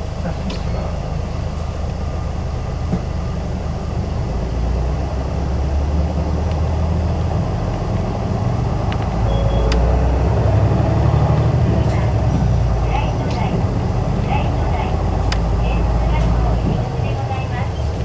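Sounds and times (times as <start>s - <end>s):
bus engine droning: 0.0s - 18.0s
faint high beep: 9.3s - 11.0s.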